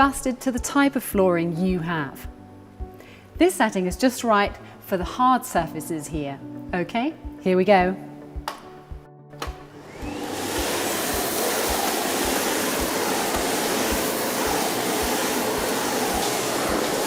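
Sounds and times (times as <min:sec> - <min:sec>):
vacuum cleaner suction noise: 0:09.4 - 0:17.0.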